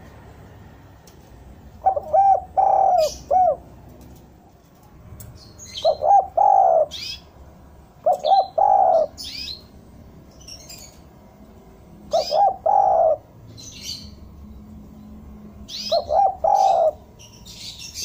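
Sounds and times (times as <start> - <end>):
dove cooing: 1.8 - 3.8, 5.8 - 7.2, 8.0 - 9.5, 12.1 - 13.4, 15.7 - 17.1
small birds chirping: 1.8 - 7.4, 8.0 - 18.0.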